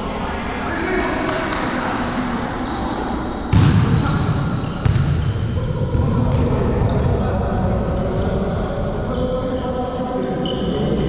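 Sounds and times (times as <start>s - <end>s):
court noise: 0.0s - 9.8s
volleyball thuds: 3.5s - 4.0s, 4.8s - 5.3s.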